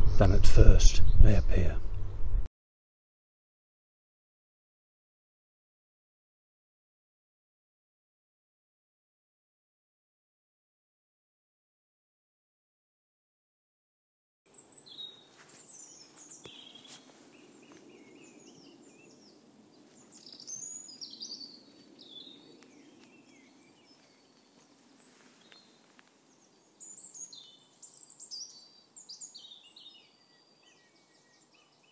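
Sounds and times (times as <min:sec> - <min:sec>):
songbirds chirping and trilling: 0:14.5 - 0:31.9.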